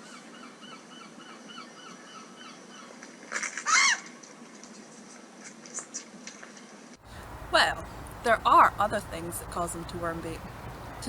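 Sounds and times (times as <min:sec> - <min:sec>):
gulls calling: 0:07.0 - 0:11.0.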